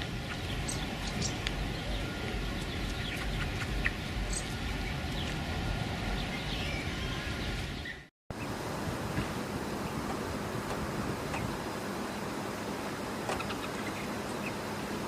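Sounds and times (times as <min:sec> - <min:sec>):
outdoor background rumble: 0:00.0 - 0:15.0
high bird chirps: 0:00.2 - 0:05.4.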